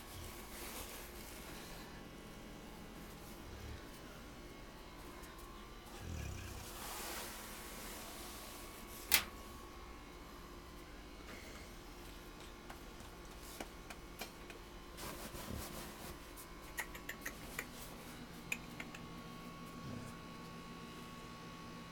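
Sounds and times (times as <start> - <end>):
steady hum: 0.0 - 21.9
puppy snoring softly: 5.9 - 7.5.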